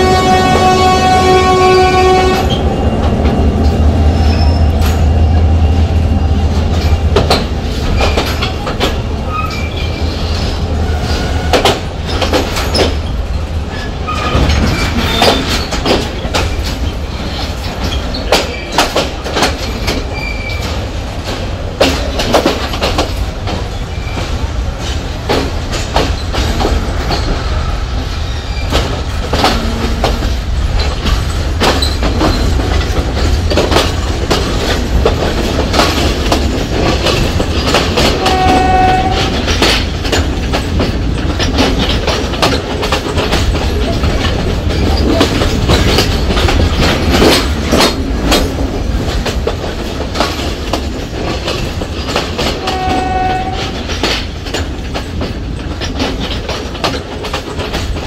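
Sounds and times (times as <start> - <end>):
train horn toot: 0.0 - 2.9, 29.4 - 30.4, 38.1 - 39.5, 52.6 - 53.9
train rumbling on rails: 0.0 - 58.0
wheels and couplings clanking: 0.1 - 58.0.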